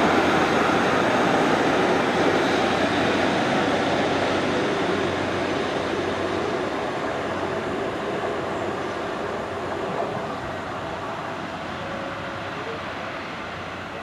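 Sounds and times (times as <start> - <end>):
diesel train engine: 0.0 - 14.0
train rail noise: 0.0 - 14.0.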